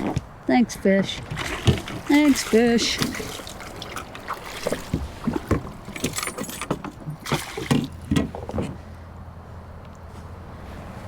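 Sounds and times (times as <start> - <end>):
small water plops: 1.0 - 8.6
knocks and clicks: 4.9 - 8.8.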